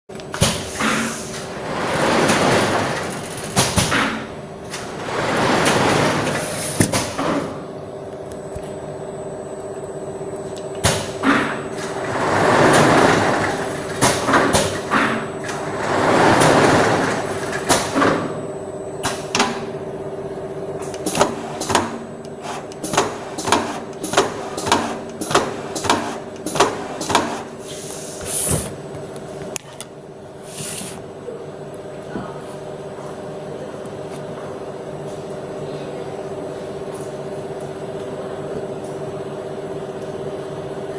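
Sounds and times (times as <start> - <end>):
screen-printing machine humming: 0.1 - 40.9
sharp machine clacks: 20.8 - 27.5.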